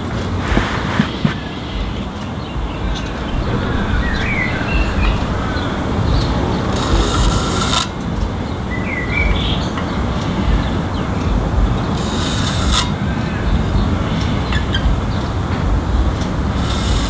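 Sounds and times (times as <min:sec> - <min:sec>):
scratchy rubbing noise: 0:00.0 - 0:02.2, 0:02.8 - 0:08.5, 0:11.9 - 0:17.0
steady low rumble: 0:00.0 - 0:17.0
bird chirping: 0:01.2 - 0:17.0.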